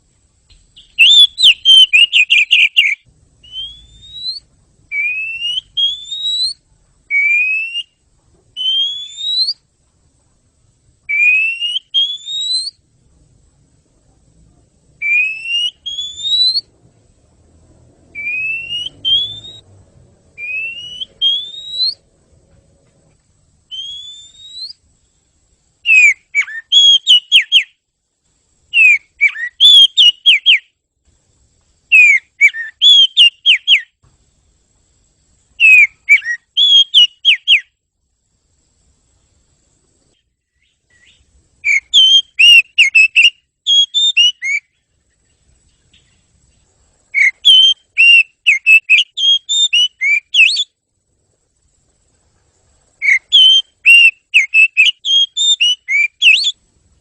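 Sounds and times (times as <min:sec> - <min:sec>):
bird singing rising whistles: 0:00.5 - 0:08.0, 0:08.6 - 0:09.6, 0:11.0 - 0:12.8, 0:15.0 - 0:16.8, 0:18.0 - 0:22.1, 0:23.7 - 0:24.9, 0:25.8 - 0:27.8, 0:28.7 - 0:30.7, 0:31.9 - 0:34.0, 0:35.6 - 0:37.8, 0:40.1 - 0:44.9, 0:47.1 - 0:50.8, 0:53.0 - 0:56.6
quick falling whistled bird notes: 0:00.8 - 0:08.0, 0:08.6 - 0:09.6, 0:15.0 - 0:16.7, 0:18.1 - 0:19.6, 0:20.4 - 0:22.0, 0:23.7 - 0:24.8, 0:47.2 - 0:50.7, 0:53.0 - 0:56.6.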